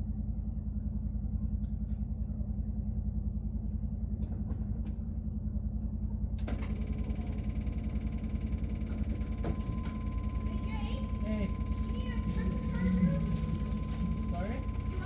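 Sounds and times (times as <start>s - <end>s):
diesel engine idling: 5.2s - 15.0s.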